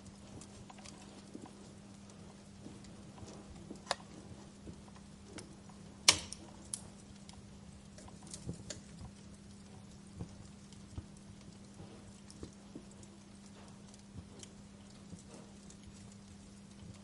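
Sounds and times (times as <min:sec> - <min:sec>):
wood fire crackling: 0:00.0 - 0:17.0
loud pop from fire: 0:06.0 - 0:06.4.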